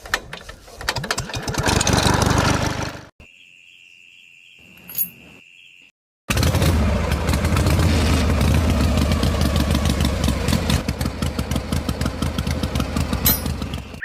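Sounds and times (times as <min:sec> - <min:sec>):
small diesel engine knocking: 0:08.6 - 0:14.0.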